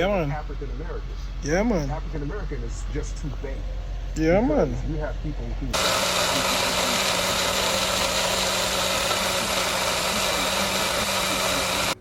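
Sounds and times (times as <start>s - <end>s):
motor running with hiss: 5.8s - 12.0s.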